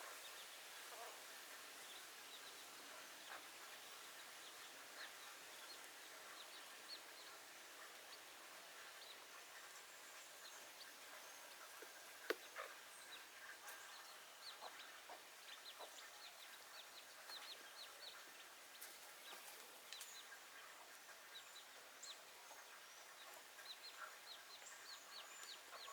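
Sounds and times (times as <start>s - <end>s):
chickens chirping: 1.9s - 25.9s
chickens clucking: 2.4s - 21.9s.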